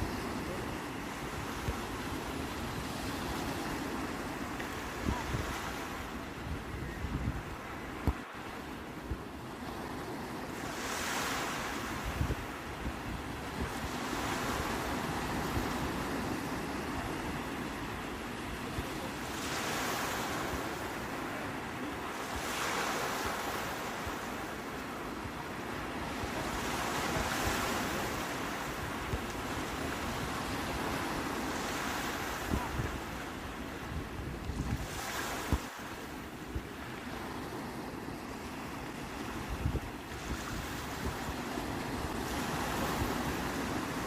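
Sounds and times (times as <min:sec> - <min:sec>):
wind rumbling on microphone: 0:00.0 - 0:08.2, 0:10.6 - 0:19.0, 0:28.7 - 0:35.8, 0:38.2 - 0:44.0
waves breaking on shore: 0:00.0 - 0:44.0.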